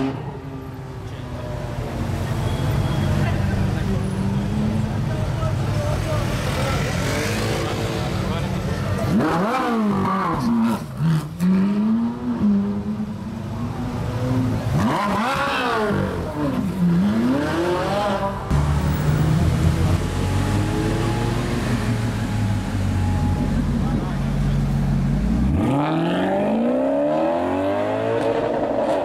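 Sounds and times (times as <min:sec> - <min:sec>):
sports car engine revving: 0:06.3 - 0:13.0, 0:14.2 - 0:29.0.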